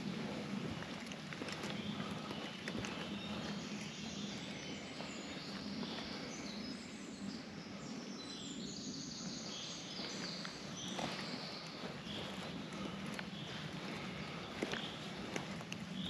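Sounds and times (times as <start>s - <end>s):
steady rushing noise: 0.0s - 8.2s, 9.2s - 16.0s
small birds chirping: 0.0s - 16.0s.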